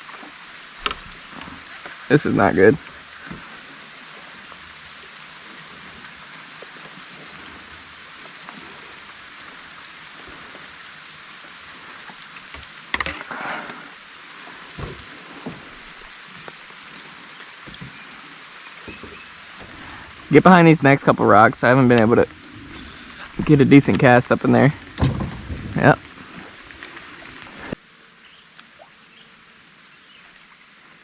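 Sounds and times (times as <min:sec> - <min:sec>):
river water rushing: 0:00.0 - 0:27.8
small knocks on kayak: 0:24.9 - 0:26.0.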